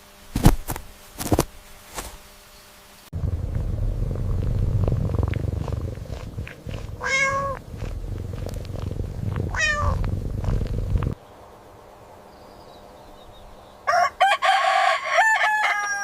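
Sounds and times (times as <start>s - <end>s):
cat purring: 3.1s - 11.2s
cat meowing: 7.0s - 7.6s, 9.5s - 10.0s.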